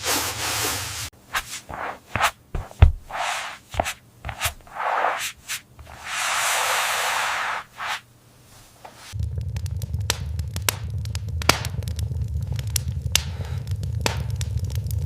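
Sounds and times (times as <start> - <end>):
scraping and rubbing strokes: 0.0 - 9.2.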